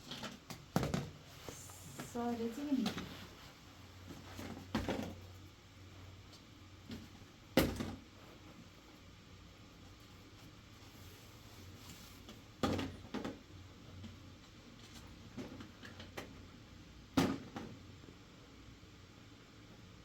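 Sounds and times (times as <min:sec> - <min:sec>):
faint steady hiss: 0:01.2 - 0:04.5.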